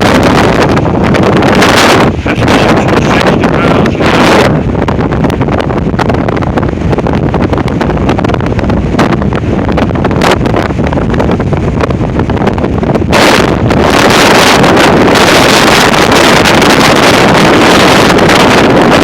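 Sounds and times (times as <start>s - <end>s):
strong wind buffeting microphone: 0.0s - 19.0s.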